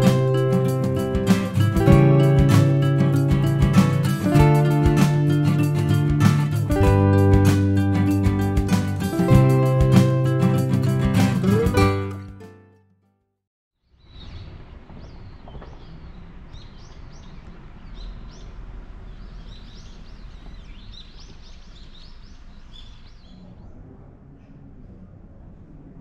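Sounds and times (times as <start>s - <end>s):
small birds chirping: 13.8s - 23.8s
low outdoor rumble: 14.4s - 26.0s.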